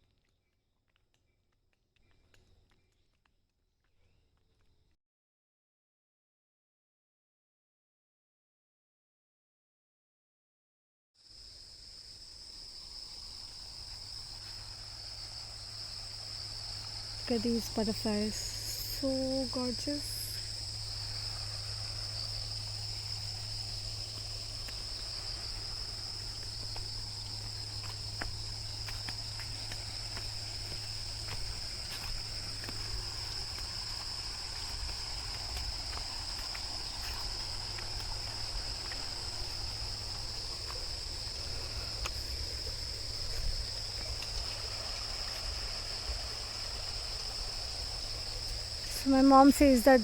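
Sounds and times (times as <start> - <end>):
insects shrill drone: 11.3 - 50.0.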